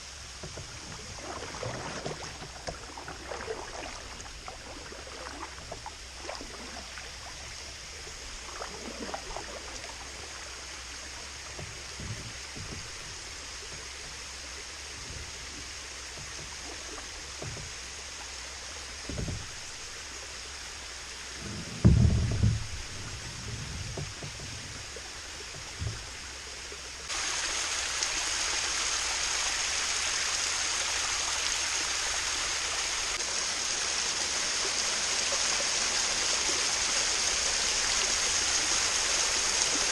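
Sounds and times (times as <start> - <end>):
running water rushing: 0.0 - 39.9
hollow thump against hull: 0.4 - 20.3, 21.3 - 27.1
light knocks on kayak: 11.5 - 14.2, 17.4 - 17.9, 19.0 - 20.0, 21.4 - 24.8.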